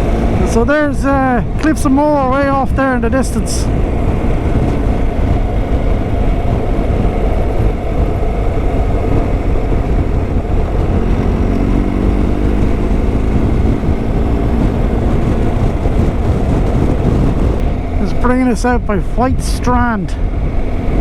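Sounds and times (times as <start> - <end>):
motorcycle engine running: 0.0 - 21.0
wind rumble on microphone: 0.0 - 21.0.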